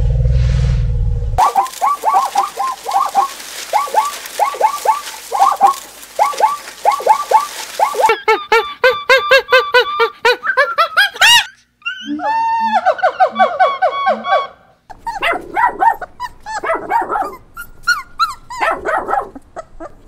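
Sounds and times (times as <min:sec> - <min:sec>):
birds chirping: 0:01.4 - 0:09.4.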